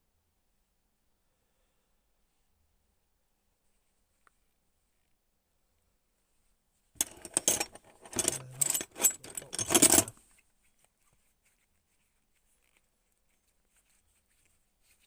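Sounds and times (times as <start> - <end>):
metal bolts jingling and clinking: 7.0 - 10.1.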